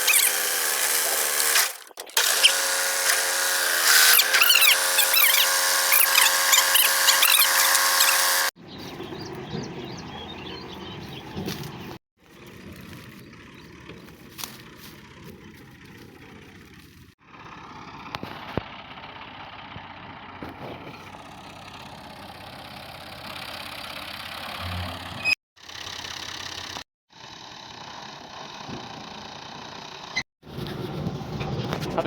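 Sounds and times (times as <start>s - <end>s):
thresher machine hiss: 0.0s - 8.6s
tractor engine running: 0.0s - 31.8s.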